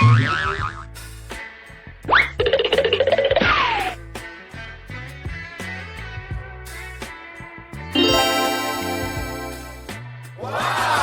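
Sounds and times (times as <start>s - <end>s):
cartoon sound effects: 8.0s - 10.0s
background music: 8.0s - 11.0s.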